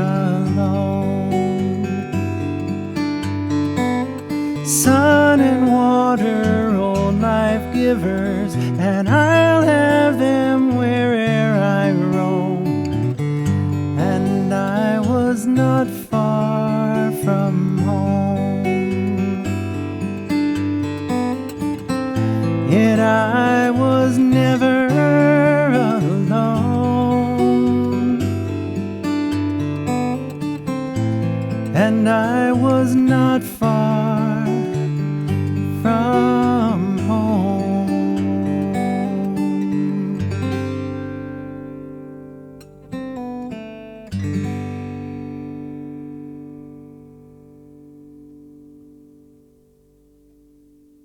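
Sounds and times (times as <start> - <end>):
strummed acoustic guitar: 0.0 - 51.0.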